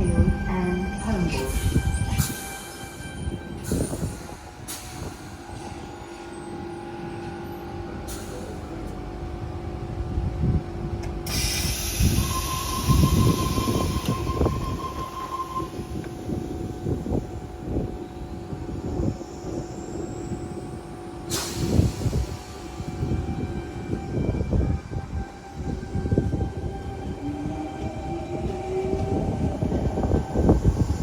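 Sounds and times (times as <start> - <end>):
electric train humming: 0.0 - 31.0
brief steady tone: 12.1 - 16.0.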